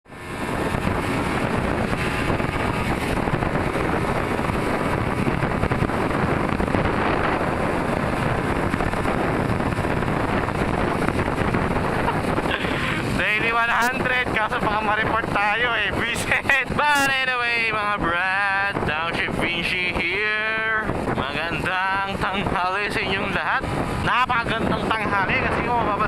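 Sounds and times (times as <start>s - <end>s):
motorcycle engine running: 0.0s - 13.6s
wind on microphone: 0.1s - 26.0s.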